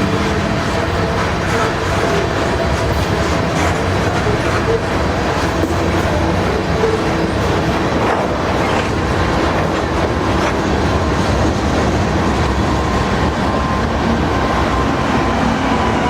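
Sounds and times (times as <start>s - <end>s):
wheels clattering over rail joints: 0.0s - 12.3s
freight train rumbling past: 0.0s - 16.0s.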